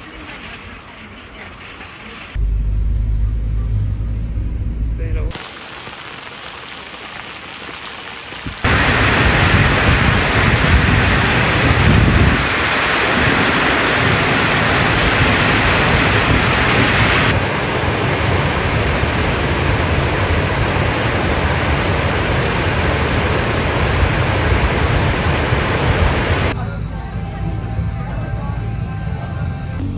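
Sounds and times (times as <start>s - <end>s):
heavy rain hissing: 5.0s - 26.6s.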